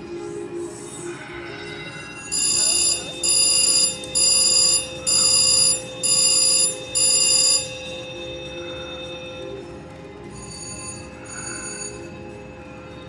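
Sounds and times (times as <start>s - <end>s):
slot machine bell ringing: 2.1s - 12.6s
casino background noise: 2.1s - 13.0s.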